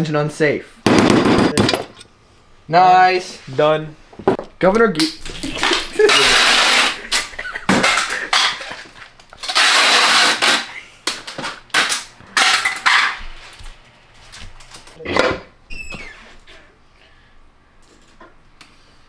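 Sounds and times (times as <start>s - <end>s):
metal parts clinking on workbench: 5.2s - 8.8s.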